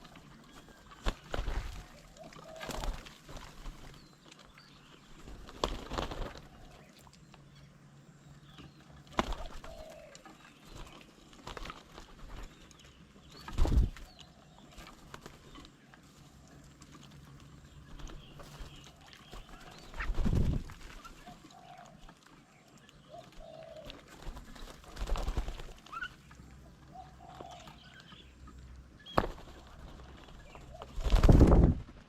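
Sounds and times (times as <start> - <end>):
dove cooing: 0.0 - 4.0, 6.0 - 7.0, 8.9 - 12.5, 18.0 - 28.4, 29.2 - 31.6
bird wings flapping: 0.0 - 4.1, 5.2 - 6.8, 9.1 - 12.8, 13.4 - 15.7, 17.8 - 21.3, 23.3 - 26.2, 29.1 - 32.0
birds pecking and knocking: 16.6 - 31.7.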